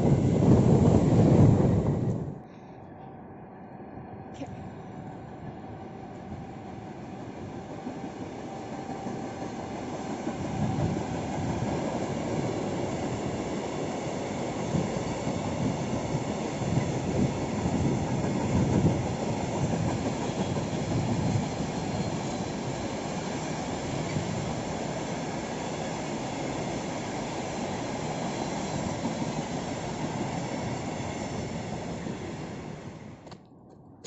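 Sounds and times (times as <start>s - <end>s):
train wheels clattering on rails: 7.6s - 32.1s.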